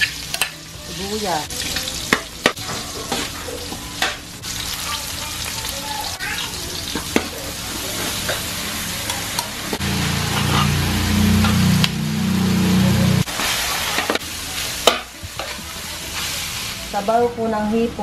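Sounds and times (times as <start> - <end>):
onions sizzling in oil: 0.0 - 18.0
metal spatula scraping a wok: 10.0 - 11.9.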